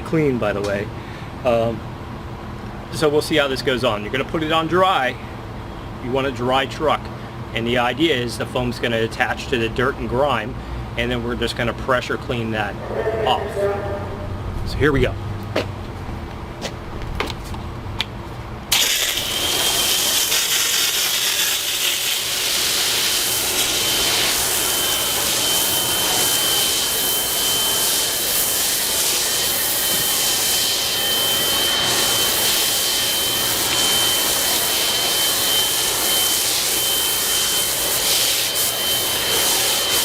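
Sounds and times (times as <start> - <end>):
pressure washer motor whine: 18.7 - 40.0
pressure washer spray hiss: 18.7 - 40.0.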